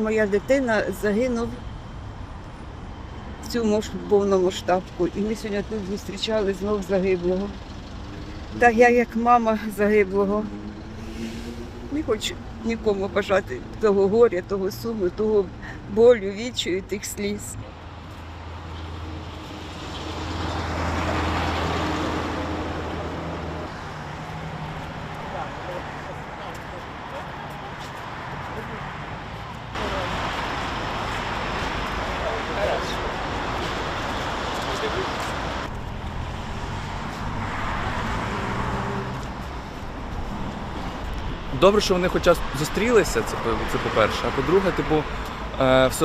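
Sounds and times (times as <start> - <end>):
road noise: 0.0 - 46.0
vehicle passing close by: 6.8 - 14.0, 18.2 - 46.0.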